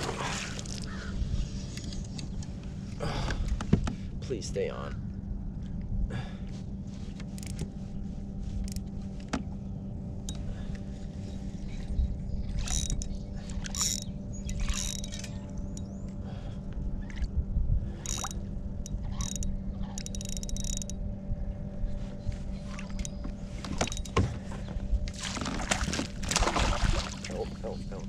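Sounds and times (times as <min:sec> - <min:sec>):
fishing reel cranking: 0:12.6 - 0:15.8, 0:18.0 - 0:21.0.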